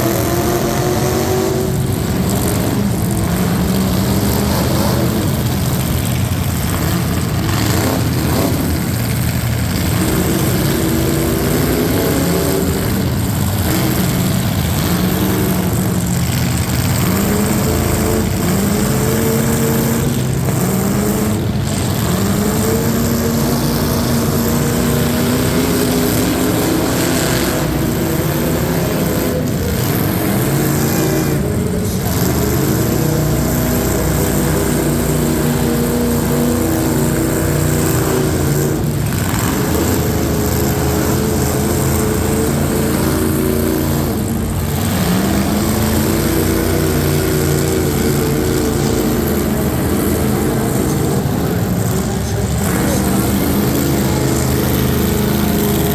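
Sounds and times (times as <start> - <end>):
truck engine revving: 0.0 - 55.9.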